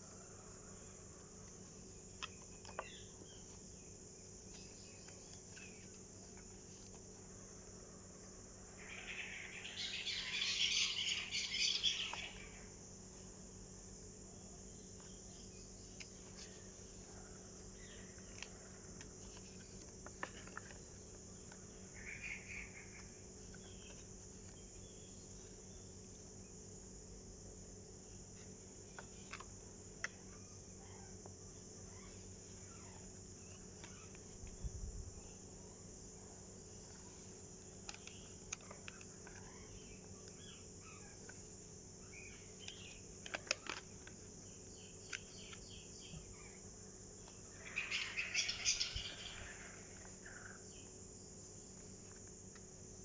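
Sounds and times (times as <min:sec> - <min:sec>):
faint steady hum: 0:00.0 - 0:53.0
small paper clicks and taps: 0:42.6 - 0:44.3.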